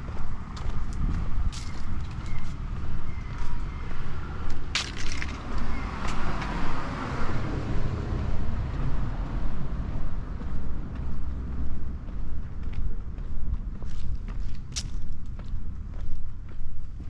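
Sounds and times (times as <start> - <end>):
car passing: 0.0 - 17.0
walking footsteps: 0.0 - 17.0.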